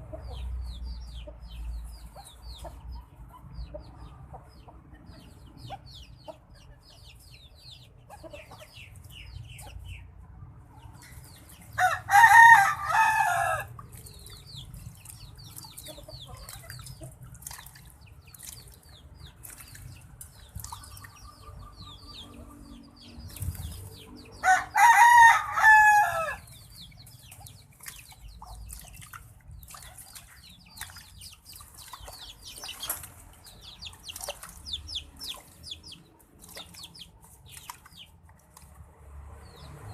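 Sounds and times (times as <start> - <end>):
high bird chirping: 14.0 - 24.4.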